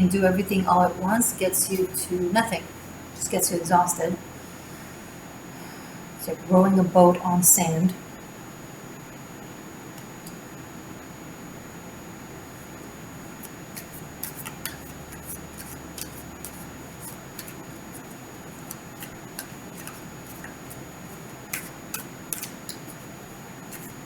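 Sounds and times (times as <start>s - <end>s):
cards being shuffled: 13.4s - 23.1s, 23.7s - 24.0s.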